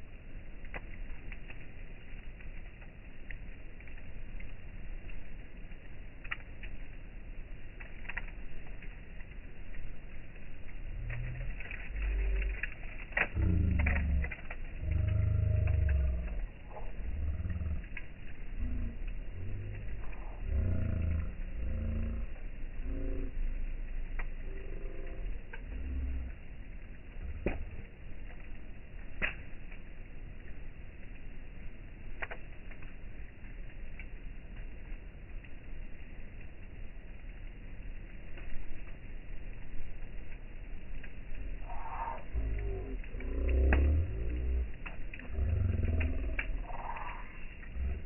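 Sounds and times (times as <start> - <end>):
campfire crackling: 0.0 - 48.0
low rumbling background: 0.0 - 48.0.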